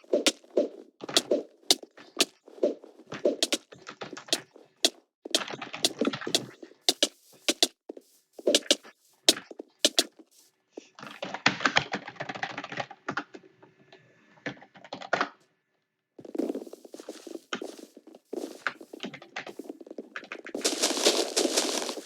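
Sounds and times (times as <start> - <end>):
typing on keyboard: 5.4 - 7.7, 8.5 - 8.8, 9.8 - 10.0.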